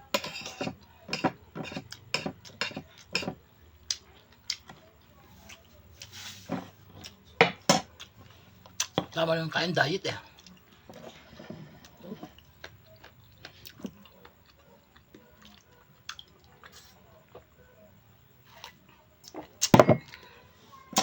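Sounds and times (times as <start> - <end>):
person chewing food: 1.7 - 4.8, 5.4 - 6.2, 7.8 - 9.0, 10.3 - 17.6.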